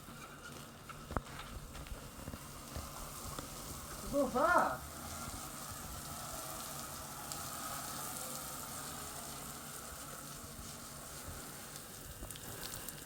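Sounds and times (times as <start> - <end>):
food sizzling in hot oil: 1.9 - 13.0.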